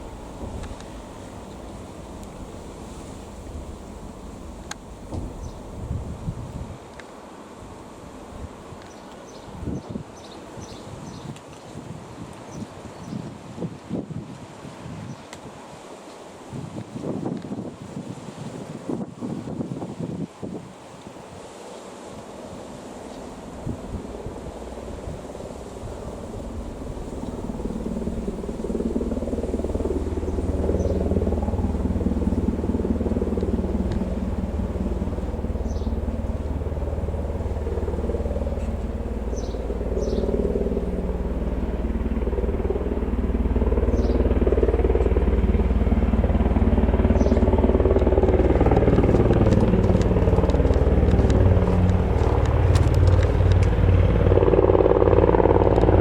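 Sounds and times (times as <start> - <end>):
helicopter rotor and turbine drone: 0.0 - 14.4, 22.1 - 56.0.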